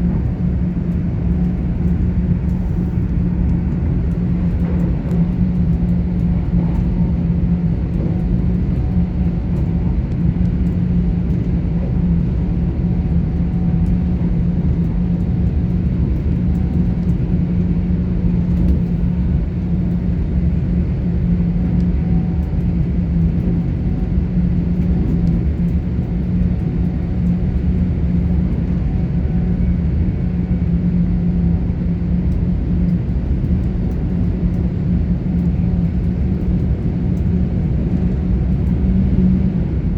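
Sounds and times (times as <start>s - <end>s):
constant low hum: 0.0s - 39.9s
train running gear rumble: 0.0s - 39.9s.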